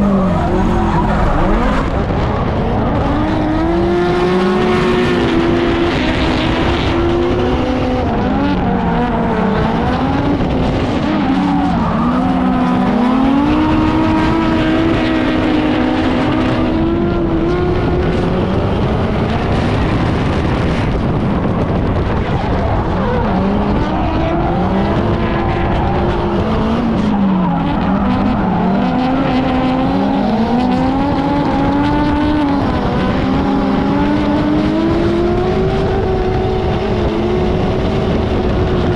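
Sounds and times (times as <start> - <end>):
car engine revving: 0.0 - 38.9
tyre and road noise: 0.0 - 38.9.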